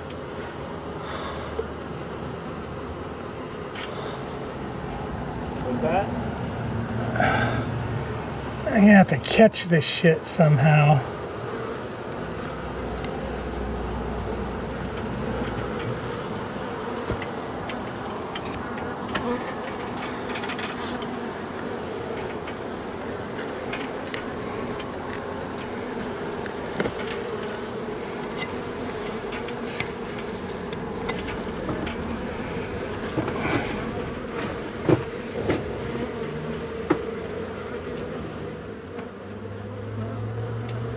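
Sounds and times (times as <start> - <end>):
honey bees buzzing: 0.0 - 40.9.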